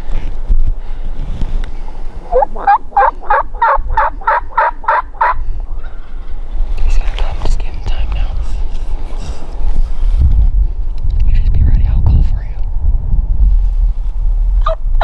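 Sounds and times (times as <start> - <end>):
wind rumble on microphone: 0.0 - 15.0
turkey calling: 2.2 - 6.0, 14.6 - 14.8.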